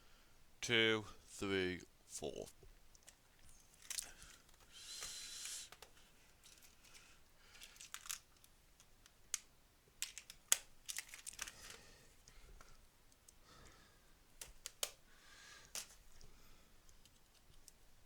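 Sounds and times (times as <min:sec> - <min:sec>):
rustle of small parts: 0:02.9 - 0:13.4, 0:14.4 - 0:18.0
light clicks and scrapes: 0:03.0 - 0:08.5.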